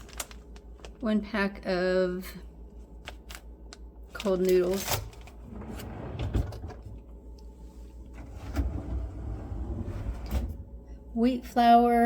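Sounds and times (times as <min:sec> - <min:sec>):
food packages rustling: 0:00.0 - 0:01.2, 0:02.8 - 0:05.5.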